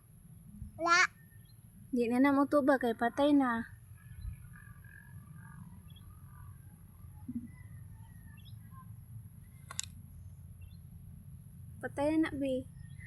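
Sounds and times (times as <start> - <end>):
low background hum: 0.0 - 13.0
faint bird chirps: 3.0 - 9.6.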